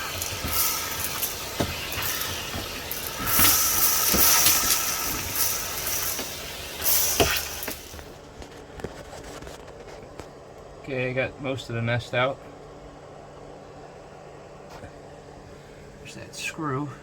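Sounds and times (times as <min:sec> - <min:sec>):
nozzle knocking: 0:00.0 - 0:08.1
shop vacuum running: 0:00.0 - 0:12.4.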